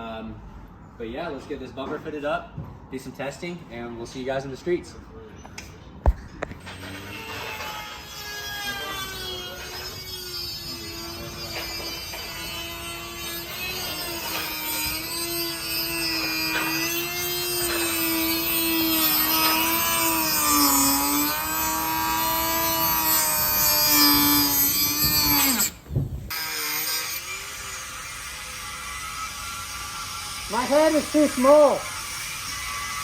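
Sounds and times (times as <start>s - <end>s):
power tool cutting: 6.7s - 33.0s.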